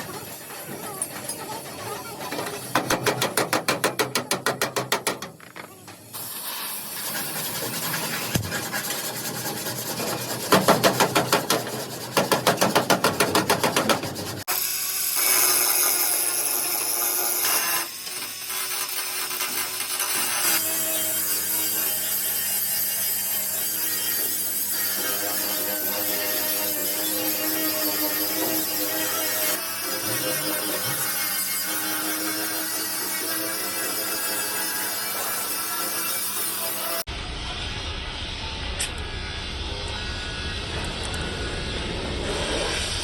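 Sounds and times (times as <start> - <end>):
steady workshop noise: 0.0 - 43.0
hand sanding strokes: 6.2 - 14.5.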